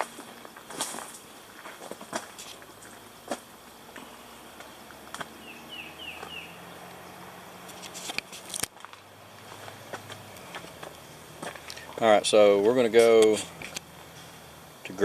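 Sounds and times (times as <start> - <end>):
footsteps: 0.0 - 5.4, 7.6 - 14.3
bird chirping: 4.0 - 7.4.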